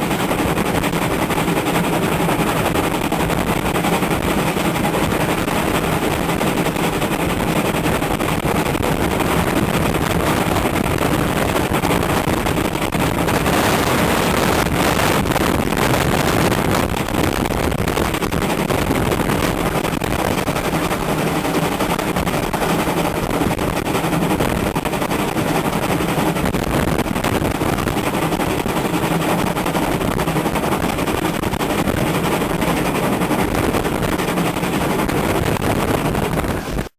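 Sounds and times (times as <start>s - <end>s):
heavy wind buffeting microphone: 0.0s - 36.9s.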